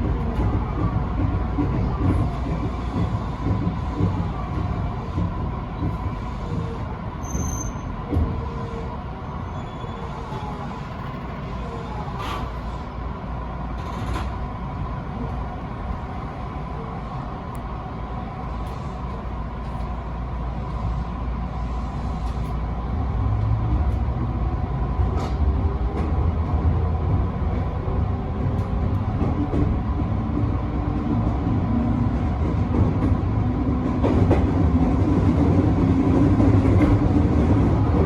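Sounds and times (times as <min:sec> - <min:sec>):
train rumble: 0:00.0 - 0:38.0.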